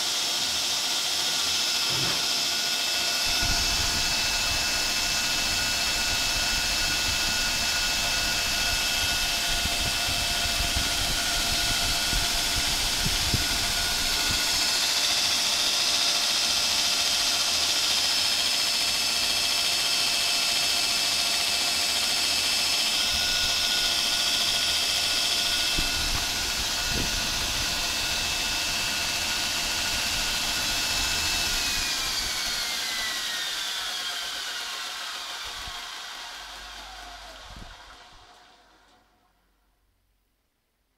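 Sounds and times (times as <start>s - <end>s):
belt grinder whine: 0.0s - 39.1s.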